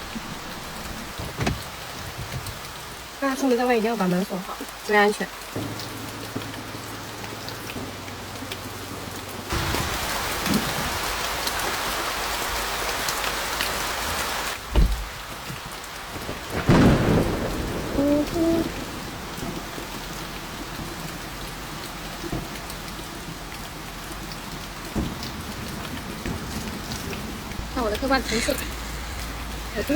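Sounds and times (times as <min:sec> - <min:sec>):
heavy rain on a car: 0:00.0 - 0:29.9
thunder: 0:16.1 - 0:23.6, 0:24.8 - 0:28.2.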